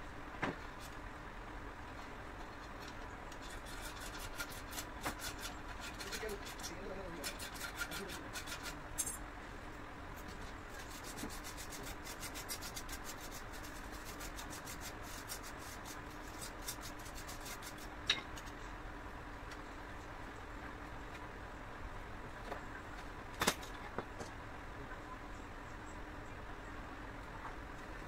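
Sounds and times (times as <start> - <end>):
rubbing on hard surface: 10.7 - 17.9.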